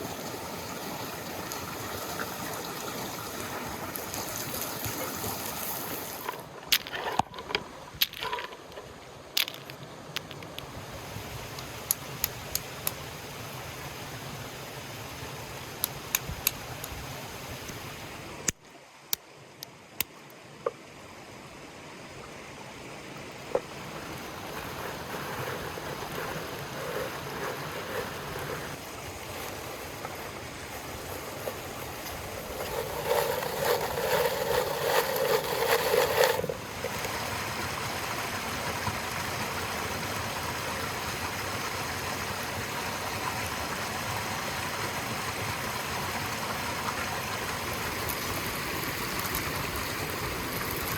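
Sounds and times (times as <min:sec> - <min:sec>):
river water rushing: 0:22.8 - 0:50.9.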